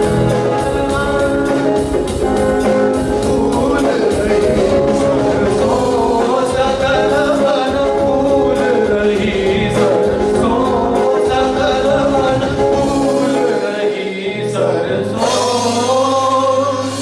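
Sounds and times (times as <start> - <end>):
percussive beat: 0.0 - 13.4
group singing: 0.0 - 17.0
instrumental accompaniment: 0.0 - 17.0.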